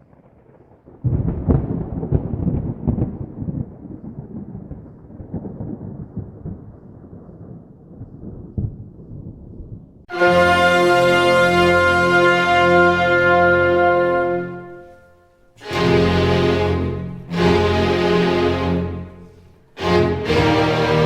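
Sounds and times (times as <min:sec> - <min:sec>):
wind and rain buffeting microphone: 0:00.0 - 0:10.1.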